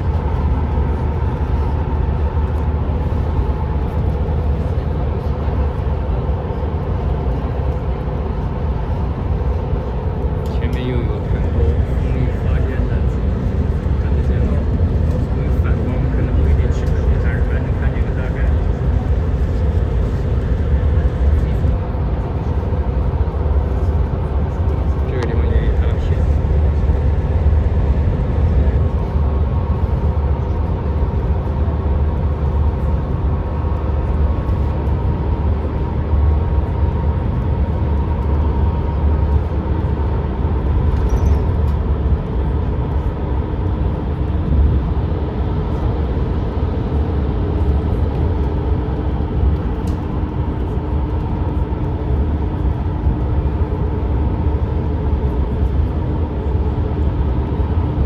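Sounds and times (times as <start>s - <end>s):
faint steady hums: 0.0s - 58.0s
vehicle road and engine rumble: 0.0s - 58.0s.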